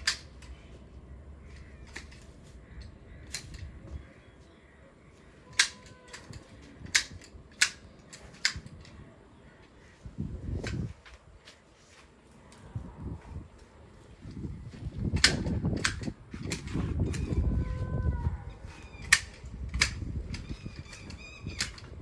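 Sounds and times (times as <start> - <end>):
pruning shears snipping branches: 1.6 - 3.8, 5.5 - 8.9, 15.1 - 17.4, 18.6 - 22.0.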